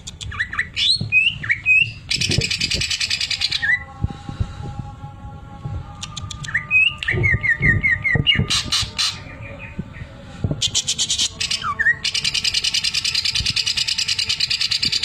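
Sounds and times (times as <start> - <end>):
bird singing whistles and trills: 0.1 - 3.8, 6.2 - 9.8, 10.6 - 15.0.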